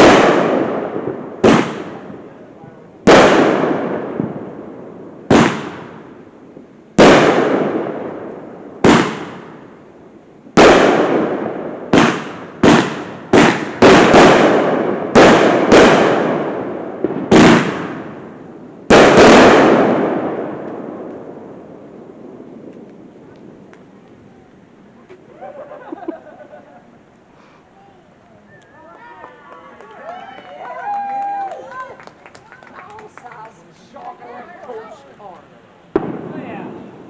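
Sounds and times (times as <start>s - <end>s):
fireworks bangs with echo: 0.0s - 23.8s, 35.9s - 37.0s.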